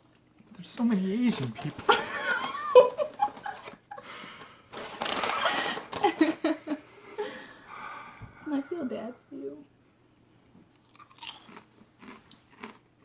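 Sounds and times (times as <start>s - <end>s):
chip bag crinkling: 0.6s - 3.8s, 4.4s - 6.6s, 10.7s - 12.8s.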